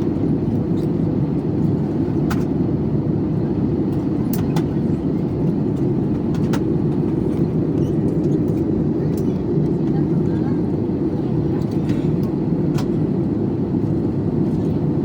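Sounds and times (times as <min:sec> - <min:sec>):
airliner cabin roar: 0:00.0 - 0:15.0.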